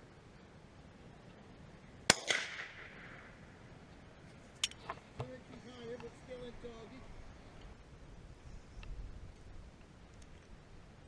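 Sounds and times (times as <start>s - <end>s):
faint outdoor rumble: 0.0s - 11.0s
faint small tick: 8.8s - 9.5s.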